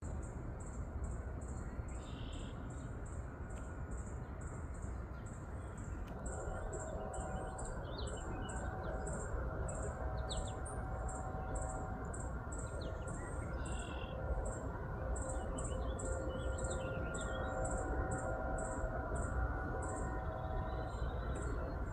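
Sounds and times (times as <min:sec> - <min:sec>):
low background rumble: 0:05.6 - 0:21.9
high pulsing trilling chirp: 0:06.2 - 0:21.9
bird chirps and tweets: 0:11.3 - 0:14.2.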